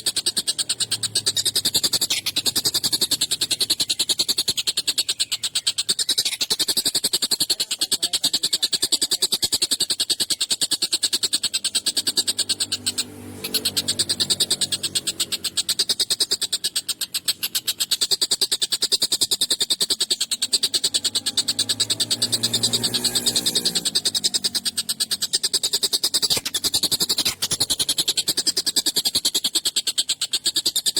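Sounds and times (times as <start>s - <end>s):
kingfisher harsh chatter: 0.0s - 18.9s.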